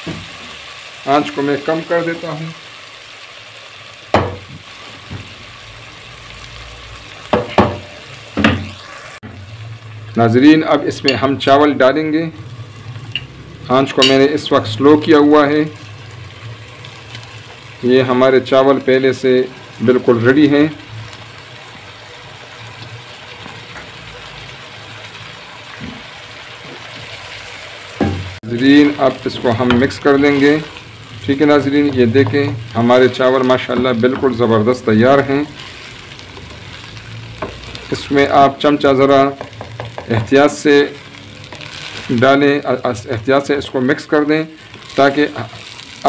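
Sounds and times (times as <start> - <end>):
vegetables sizzling in a pot: 0.0 - 46.0
wooden spatula knocking on pot: 39.3 - 40.4.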